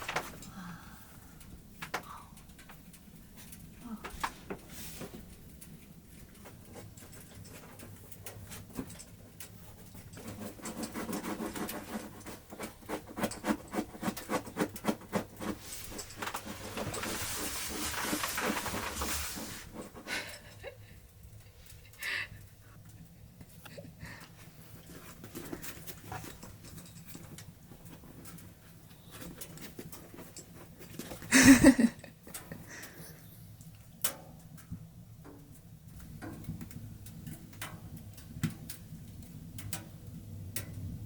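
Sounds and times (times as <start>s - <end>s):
rustling hiss: 0.0s - 8.7s, 15.4s - 22.8s.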